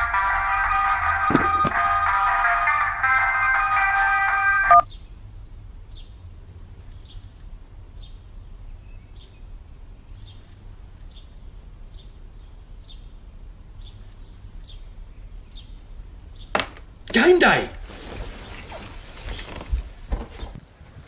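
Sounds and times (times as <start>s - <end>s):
guitar music: 0.0s - 4.8s
bird chirping: 4.8s - 16.6s.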